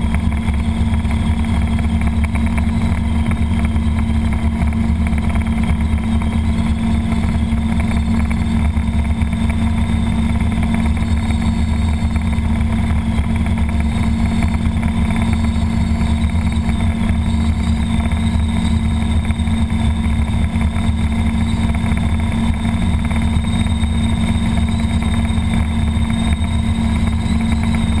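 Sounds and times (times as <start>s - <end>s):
helicopter engine and rotors: 0.0s - 28.0s
thin high steady tone: 0.0s - 28.0s.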